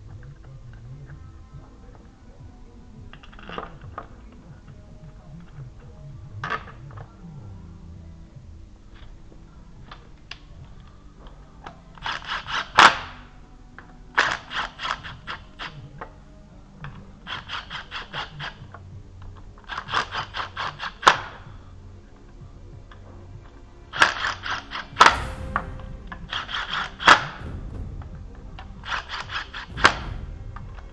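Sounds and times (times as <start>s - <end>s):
sharp clack: 24.6s - 30.9s.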